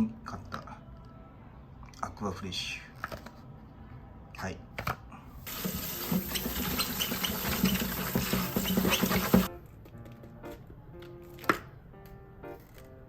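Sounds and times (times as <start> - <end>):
faint background music: 0.0 - 13.0
tap water running into sink: 5.5 - 9.5.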